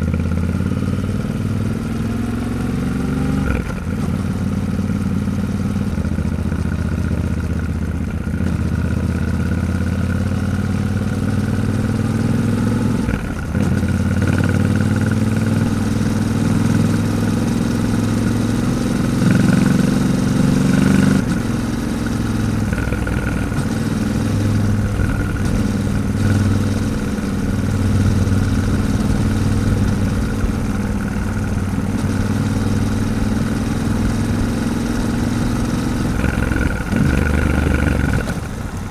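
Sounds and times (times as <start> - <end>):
motorcycle engine at speed: 0.0 - 38.9
wind and road noise: 0.0 - 38.9.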